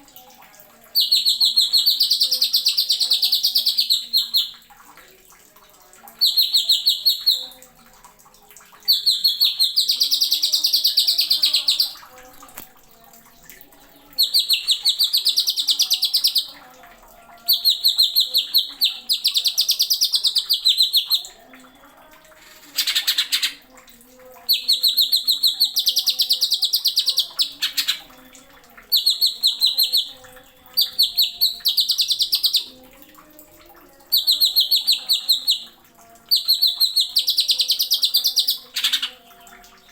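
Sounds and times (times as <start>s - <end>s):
bird singing stuttering trills: 0.9s - 4.5s, 6.2s - 7.5s, 8.9s - 12.0s, 14.2s - 16.6s, 17.5s - 21.3s, 24.5s - 28.1s, 28.9s - 32.7s, 34.1s - 35.7s, 36.3s - 39.2s.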